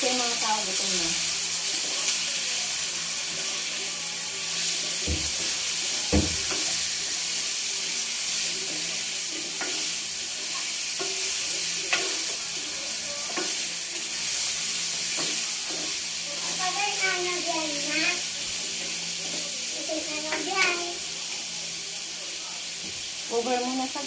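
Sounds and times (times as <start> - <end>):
food sizzling in oil: 0.0 - 24.0
spatula scraping a pan: 4.5 - 20.6.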